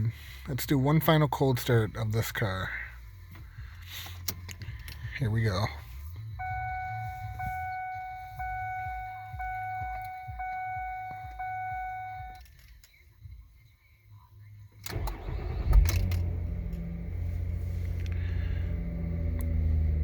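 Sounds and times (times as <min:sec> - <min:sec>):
car engine starting: 0:00.0 - 0:13.5, 0:14.4 - 0:20.0
car warning chime: 0:06.4 - 0:12.5.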